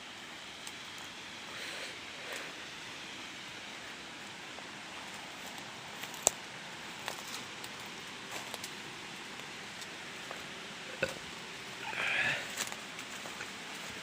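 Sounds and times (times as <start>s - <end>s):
footsteps through undergrowth: 5.0s - 10.5s, 12.0s - 14.0s.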